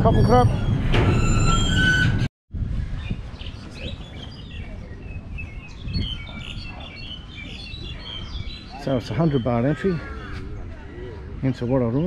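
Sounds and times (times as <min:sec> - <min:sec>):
small birds chirping: 0:02.9 - 0:12.0.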